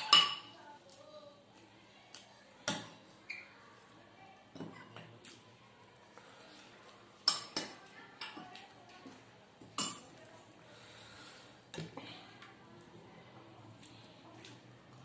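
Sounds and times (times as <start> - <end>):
utensils clinking on plate: 0.0 - 0.6, 7.2 - 8.6, 9.6 - 10.2.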